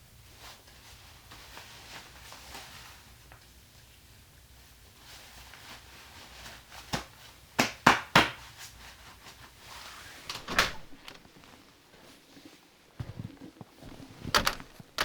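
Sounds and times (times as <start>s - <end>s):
wooden knocks and clatters: 10.3s - 11.4s, 13.0s - 15.0s.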